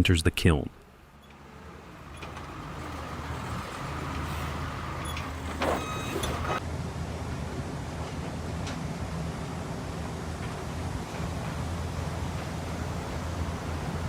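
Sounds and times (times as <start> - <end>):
machinery humming: 1.0 - 6.6.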